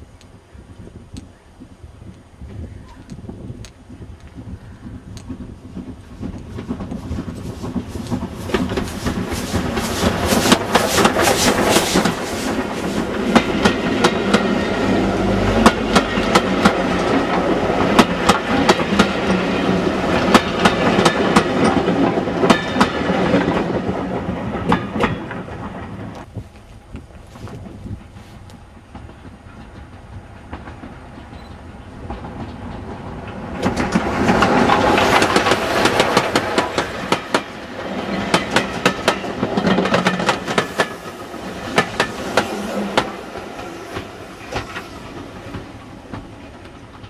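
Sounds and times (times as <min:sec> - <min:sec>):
passing train rush: 0:00.0 - 0:47.0
train wheels clickety-clack: 0:04.2 - 0:47.0.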